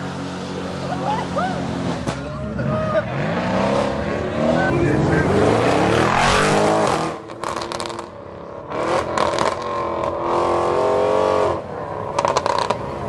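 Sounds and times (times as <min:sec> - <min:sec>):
car engines revving: 0:00.0 - 0:13.0
exhaust crackling: 0:00.8 - 0:10.2.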